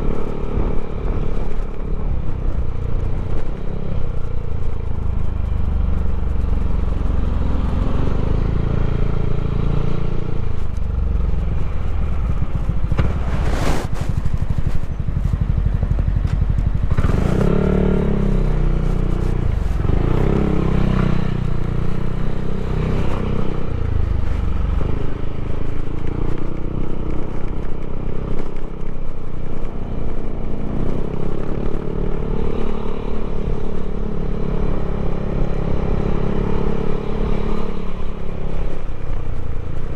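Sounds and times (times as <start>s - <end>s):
scooter engine running: 14.0s - 35.4s.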